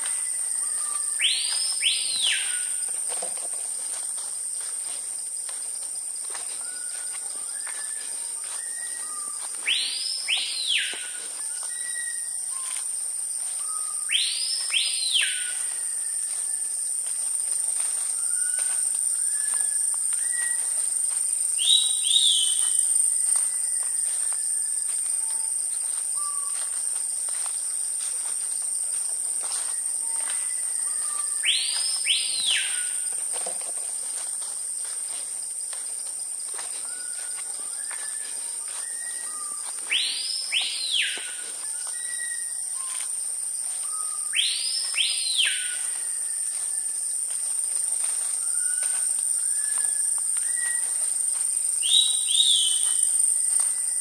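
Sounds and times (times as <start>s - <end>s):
birds whistling: 0.0s - 2.8s, 6.6s - 16.8s, 17.8s - 20.9s, 21.6s - 26.8s, 29.6s - 33.1s, 36.8s - 43.1s, 43.7s - 46.9s, 48.0s - 51.1s, 51.8s - 54.0s
high-pitched insect drone: 0.0s - 54.0s
loud double bird whistle: 43.9s - 46.2s.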